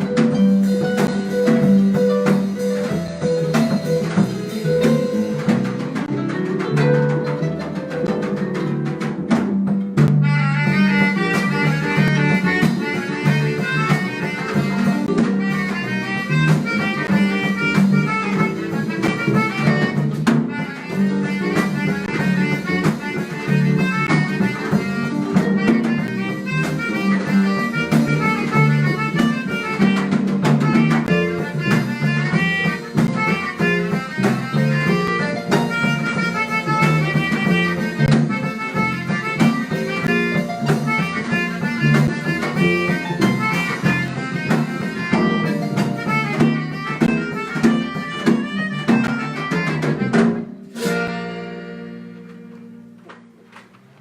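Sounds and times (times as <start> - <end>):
steady bass line: 0.0 - 50.2
harp melody notes: 50.5 - 53.5.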